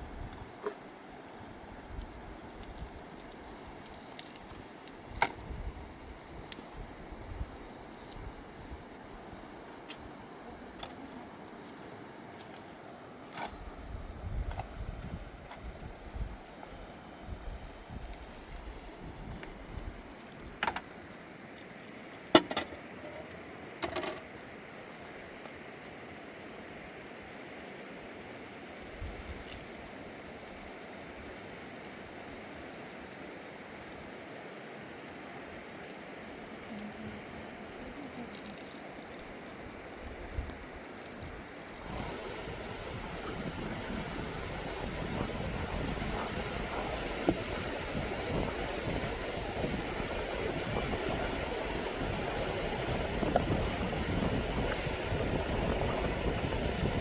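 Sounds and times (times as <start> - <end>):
fast river rushing: 41.6 - 57.0.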